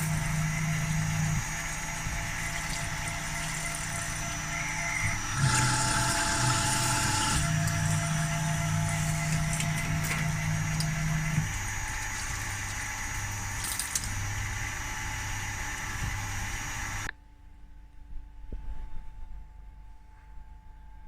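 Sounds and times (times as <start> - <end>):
machine tool humming and whining: 0.0 - 17.1.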